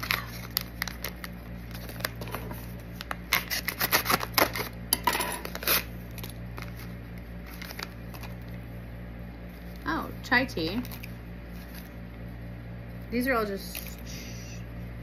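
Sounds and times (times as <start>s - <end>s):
packet tearing rustle: 0.0s - 4.8s, 5.4s - 8.5s
low steady hum: 0.0s - 15.0s.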